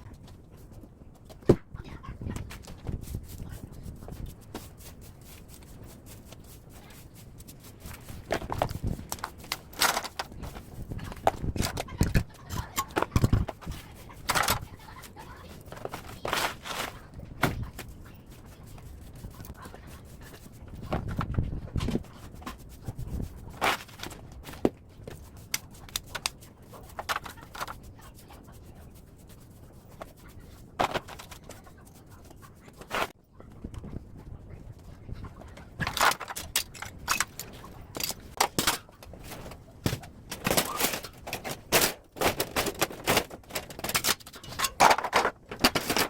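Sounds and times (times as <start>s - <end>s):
scrap metal clicks and scraping: 7.8s - 17.1s, 35.8s - 39.6s, 40.3s - 46.0s.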